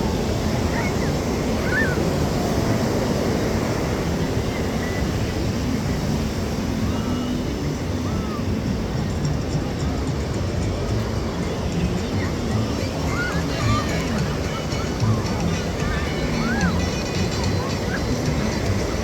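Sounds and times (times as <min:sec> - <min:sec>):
distant crowd voices: 0:00.0 - 0:19.0
surf: 0:00.0 - 0:19.0.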